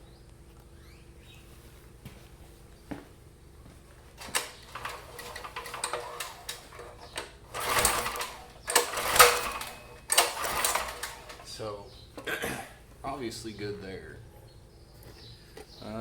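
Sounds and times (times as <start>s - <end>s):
engine recoil starter pulls: 4.2s - 11.6s.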